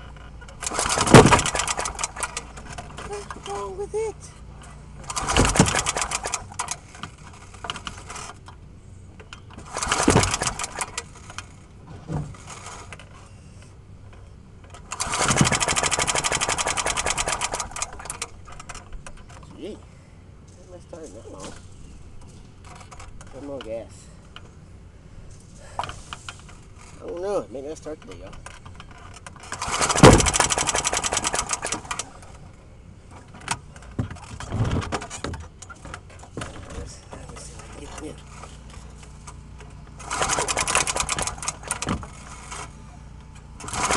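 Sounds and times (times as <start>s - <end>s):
lawnmower engine cranking: 0.0s - 8.6s, 9.3s - 11.6s, 12.3s - 13.2s, 14.7s - 19.6s, 25.4s - 32.5s, 33.1s - 43.9s
lawnmower engine firing briefly: 0.6s - 2.8s, 5.0s - 6.8s, 9.6s - 11.4s, 14.9s - 18.9s, 29.4s - 32.2s, 40.0s - 42.8s, 43.6s - 43.9s.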